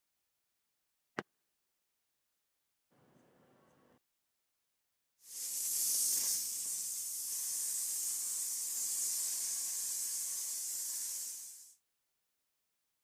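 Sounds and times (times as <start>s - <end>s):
air spray hissing: 5.2s - 11.8s.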